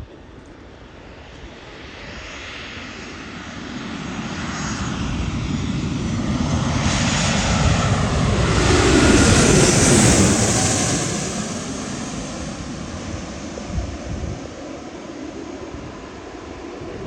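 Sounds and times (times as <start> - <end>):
airliner engines roaring overhead: 0.0 - 17.0.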